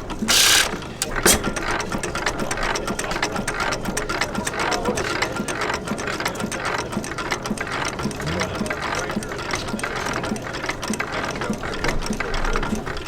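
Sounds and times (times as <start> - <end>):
engine valve gear clatter: 0.0 - 1.8.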